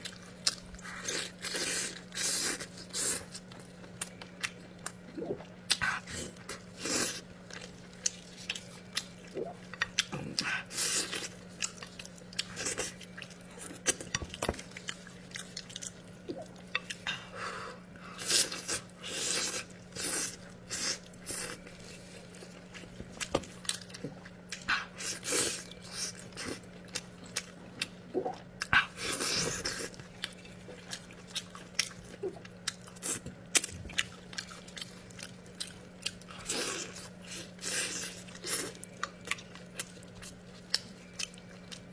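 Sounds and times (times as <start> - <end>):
person chewing and biting food: 18.2 - 41.9.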